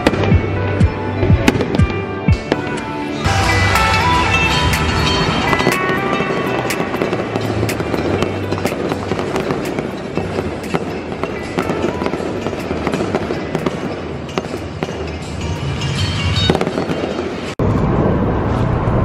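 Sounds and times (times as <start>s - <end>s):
fireworks popping and crackling: 0.0s - 0.6s, 1.4s - 18.9s
music playing: 0.0s - 17.6s.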